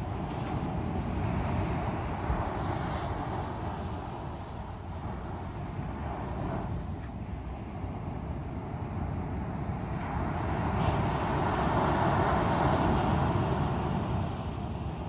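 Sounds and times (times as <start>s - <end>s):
sea waves breaking on shore: 0.0s - 15.0s.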